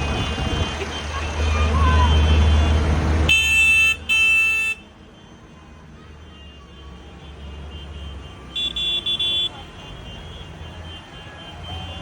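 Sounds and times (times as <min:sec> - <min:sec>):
tractor engines rumbling: 0:00.0 - 0:12.0
vehicle horn tooting: 0:01.9 - 0:04.9, 0:06.4 - 0:12.0.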